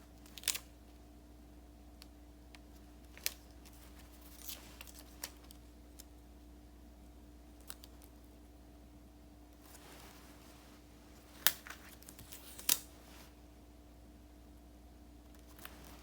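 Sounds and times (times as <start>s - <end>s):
faint hum: 0.0s - 16.0s
paper and stickers being handled: 2.6s - 6.1s, 9.6s - 13.3s, 15.4s - 16.0s.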